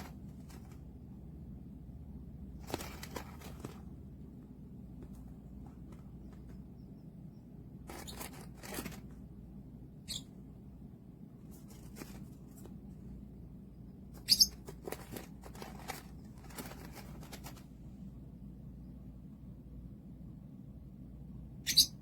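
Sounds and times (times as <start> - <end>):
bird rustling and wing flaps: 0.0 - 1.2, 2.4 - 6.8, 7.8 - 9.4, 11.3 - 13.2, 14.0 - 18.1
bird chirps: 10.0 - 10.4, 14.2 - 14.8, 21.6 - 22.0.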